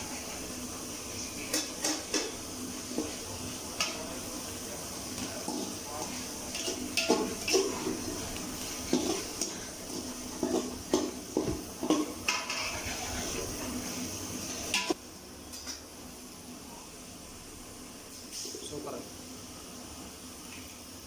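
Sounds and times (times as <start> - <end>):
steady hiss: 0.0 - 21.0
metal utensil scraping a pan: 5.5 - 11.2, 11.8 - 13.6.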